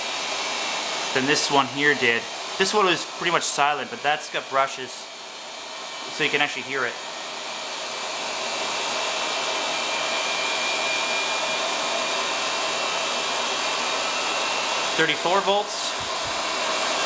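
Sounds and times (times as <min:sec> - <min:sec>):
vacuum cleaner motor whirring: 0:00.0 - 0:17.0.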